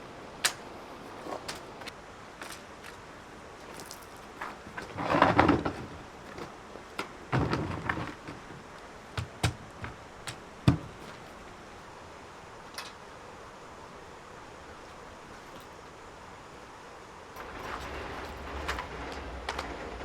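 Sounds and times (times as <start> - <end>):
hard objects scraping and clattering: 4.4 - 8.7, 17.4 - 20.0.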